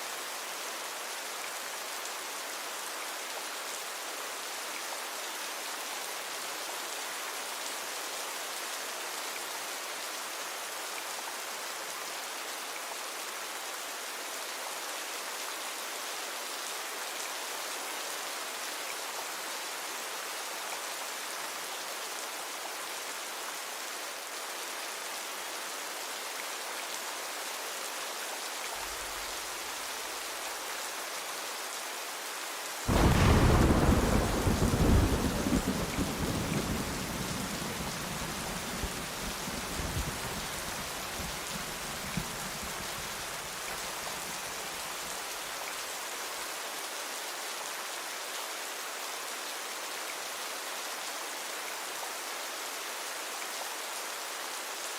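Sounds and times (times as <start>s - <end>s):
steady rain falling: 0.0s - 54.9s
thunder rolling: 32.9s - 41.1s.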